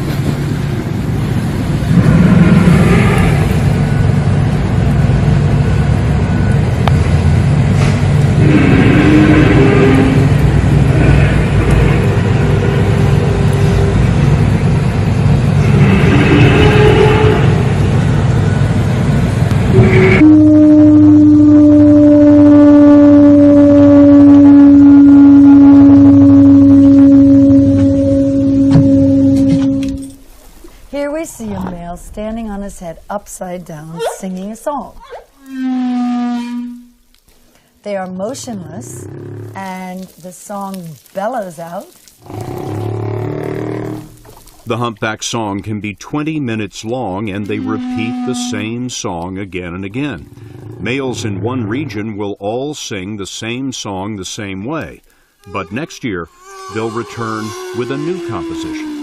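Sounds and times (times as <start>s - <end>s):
low rumbling: 0.0s - 41.2s, 41.8s - 59.0s
low whale drone: 1.8s - 7.2s, 8.2s - 30.3s, 35.0s - 37.1s, 42.2s - 44.5s, 47.4s - 48.8s, 50.2s - 51.8s, 55.4s - 59.0s
higher whale calls: 8.4s - 14.2s, 19.7s - 30.2s, 35.0s - 37.0s, 47.4s - 48.8s, 55.4s - 59.0s.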